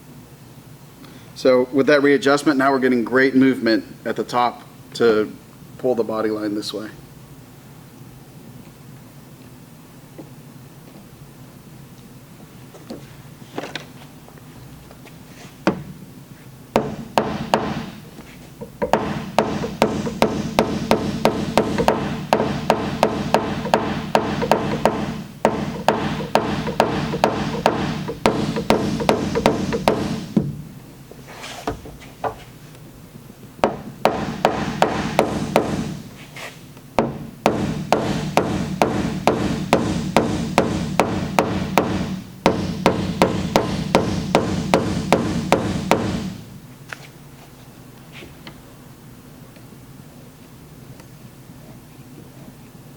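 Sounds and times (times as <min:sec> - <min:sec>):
hammer tapping on metal panel: 0:18.6 - 0:30.6.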